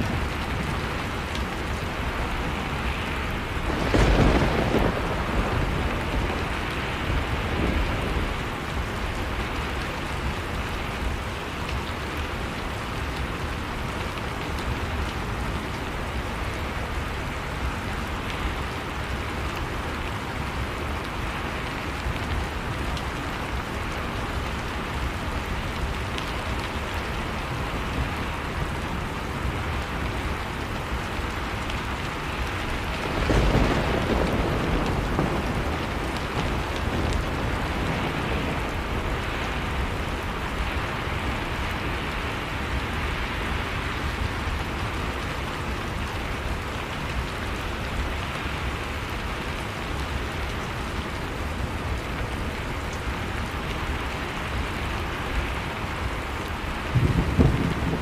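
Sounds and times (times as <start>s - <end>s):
heavy rain: 0.0s - 58.0s
thunder: 3.5s - 8.5s, 32.9s - 39.0s, 56.9s - 58.0s.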